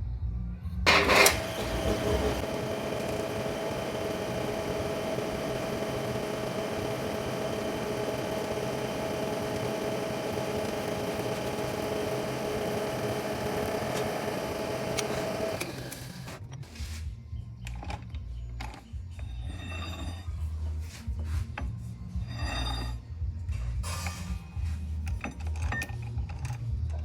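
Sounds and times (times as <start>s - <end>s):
metal lathe whining hum: 0.9s - 16.4s.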